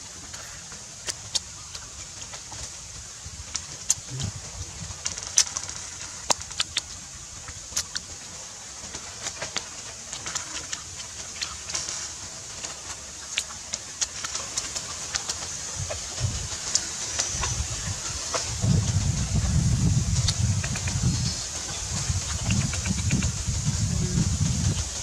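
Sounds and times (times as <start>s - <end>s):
person chewing close to microphone: 3.5s - 8.1s, 12.6s - 16.8s, 22.0s - 24.9s
wet mouth clicks and smacks: 6.3s - 7.0s, 7.7s - 8.1s, 22.2s - 23.4s.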